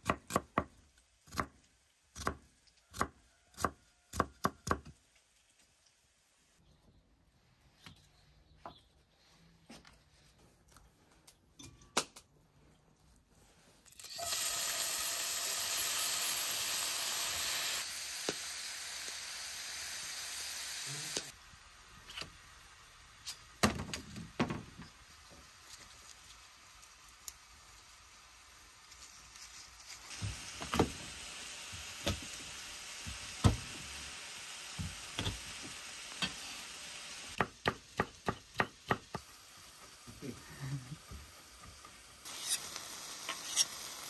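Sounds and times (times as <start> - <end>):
food sizzling in hot fat: 0.0 - 6.6, 13.8 - 44.0.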